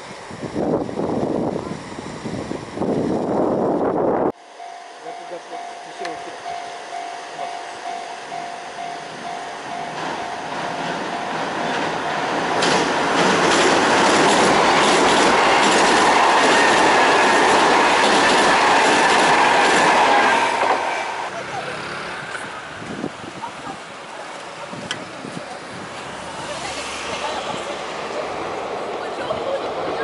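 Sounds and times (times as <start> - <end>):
electric train passing on a bridge: 0.0 - 30.0
train wheel clatter: 9.7 - 21.2.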